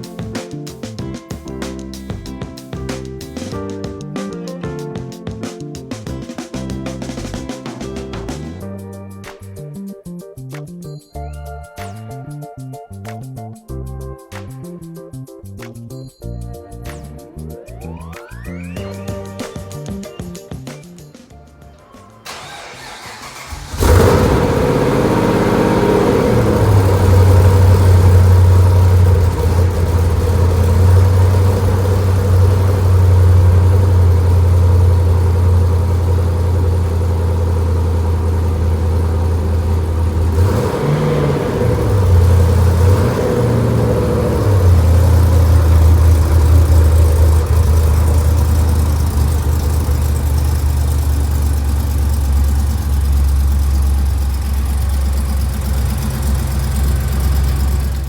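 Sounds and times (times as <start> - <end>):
car engine idling: 22.3 - 58.0.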